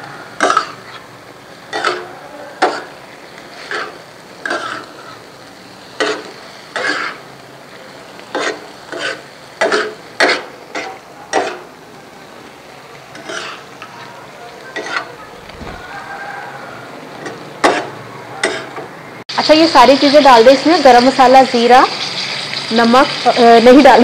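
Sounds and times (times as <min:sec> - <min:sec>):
meat sizzling in oil: 0:00.0 - 0:18.7, 0:19.3 - 0:24.0
spatula scraping a pan: 0:03.5 - 0:05.2, 0:06.0 - 0:07.2, 0:08.3 - 0:11.7, 0:14.7 - 0:15.8.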